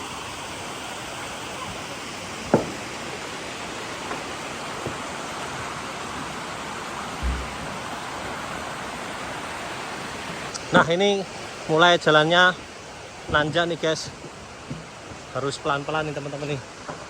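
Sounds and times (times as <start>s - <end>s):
flowing water rushing: 0.0s - 17.0s
low thump: 2.5s - 2.9s, 7.2s - 7.6s.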